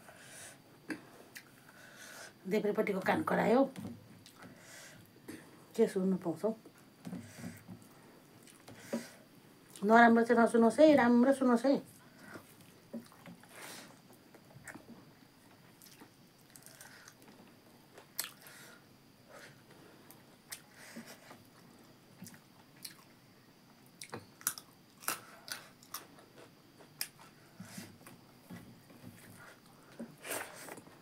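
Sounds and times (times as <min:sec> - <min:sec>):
person chewing food: 0:07.5 - 0:09.8, 0:15.6 - 0:18.5, 0:22.2 - 0:23.1, 0:24.0 - 0:28.3.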